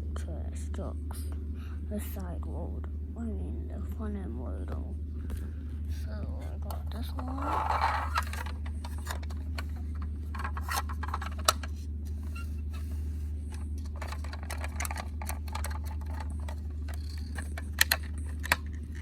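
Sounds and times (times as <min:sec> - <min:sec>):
steady low hum: 0:00.0 - 0:19.0
toy truck clicks and rattles: 0:07.0 - 0:11.7, 0:13.8 - 0:19.0.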